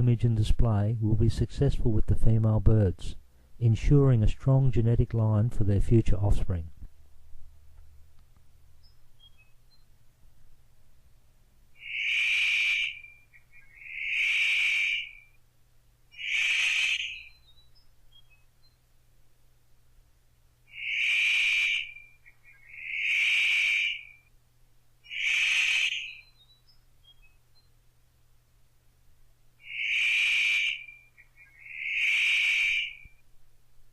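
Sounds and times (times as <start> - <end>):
bird giving harsh calls: 11.8 - 15.4, 16.1 - 18.4, 20.7 - 24.3, 25.0 - 26.5, 29.6 - 33.2.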